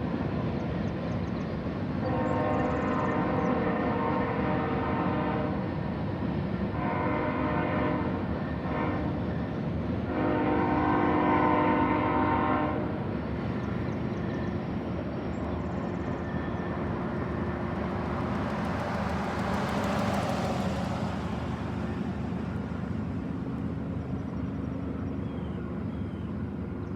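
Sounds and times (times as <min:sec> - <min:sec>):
train rumbling past: 0:00.0 - 0:26.9
train air horn: 0:02.0 - 0:05.7, 0:06.7 - 0:09.3, 0:10.0 - 0:13.1.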